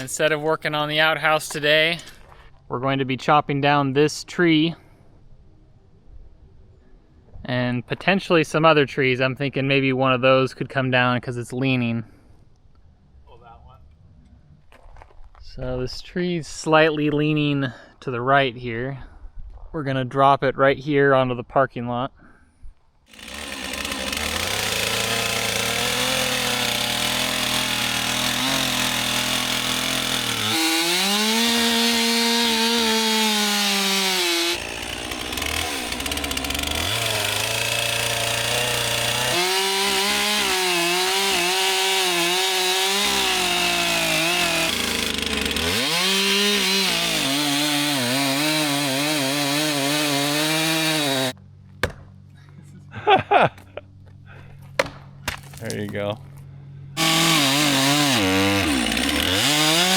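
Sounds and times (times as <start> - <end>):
chainsaw cutting tree trunk: 0.0 - 0.2, 23.1 - 52.2, 57.0 - 59.9.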